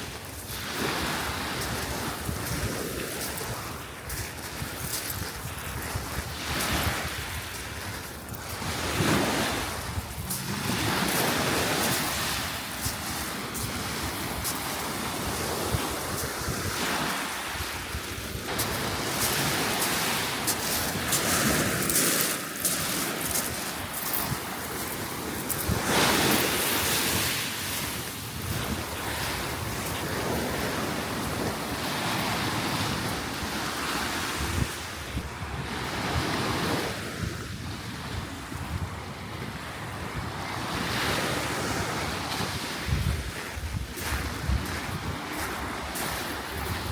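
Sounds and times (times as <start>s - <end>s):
sea waves breaking on shore: 0.0s - 46.9s
wind on microphone: 0.0s - 46.9s.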